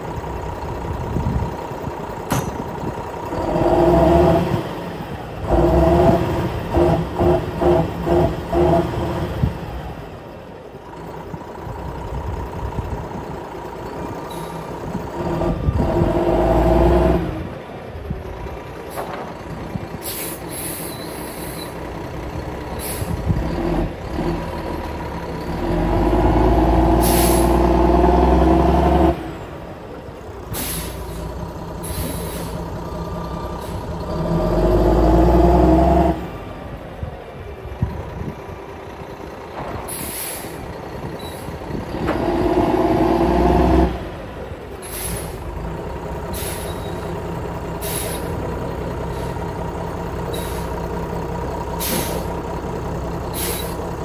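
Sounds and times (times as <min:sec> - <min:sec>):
diesel truck engine running: 0:00.0 - 0:54.0
air hissing from truck: 0:19.9 - 0:21.8, 0:22.7 - 0:23.3, 0:27.0 - 0:27.6, 0:30.5 - 0:32.7, 0:39.8 - 0:41.6, 0:44.8 - 0:45.5, 0:46.3 - 0:47.0, 0:47.8 - 0:48.4, 0:49.1 - 0:49.4, 0:50.3 - 0:50.8, 0:51.7 - 0:52.4, 0:53.2 - 0:53.9.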